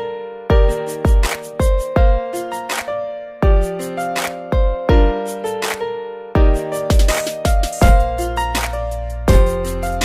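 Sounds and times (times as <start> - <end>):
deep kick drum: 6.4 - 8.2, 9.3 - 9.7.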